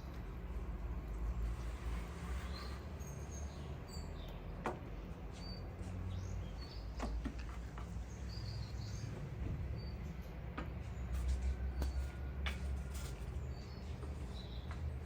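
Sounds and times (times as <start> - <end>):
small birds chirping: 2.2 - 12.0, 13.3 - 15.0.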